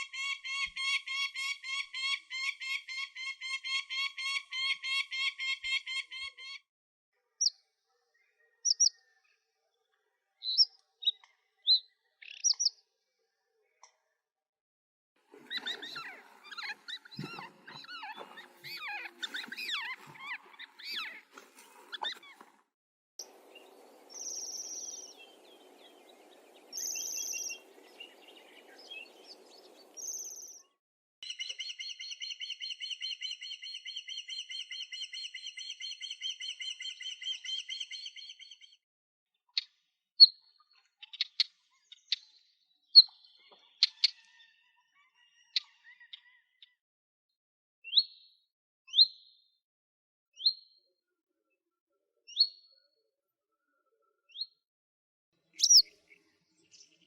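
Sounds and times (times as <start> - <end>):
bird chirps and song: 7.4 - 9.4, 10.4 - 12.8, 15.4 - 22.5, 23.2 - 38.8, 39.5 - 46.8, 47.9 - 49.5, 50.4 - 50.8, 52.3 - 52.9, 54.2 - 54.6, 55.5 - 57.0
high bird squeaks: 15.5 - 21.3, 21.9 - 22.4.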